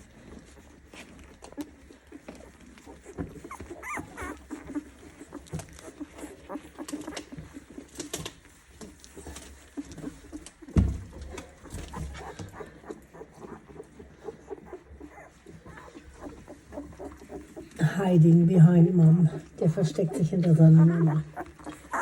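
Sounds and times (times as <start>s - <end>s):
faint puppy squeaks: 0.0s - 17.8s, 19.2s - 22.0s
puppies suckling: 0.0s - 22.0s
soft thump: 10.7s - 12.1s.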